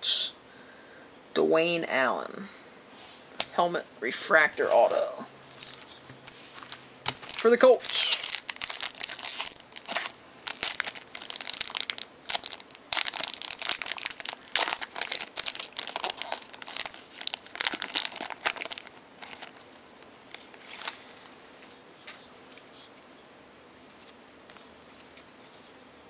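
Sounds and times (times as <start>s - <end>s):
card packaging crinkling: 5.5s - 21.2s.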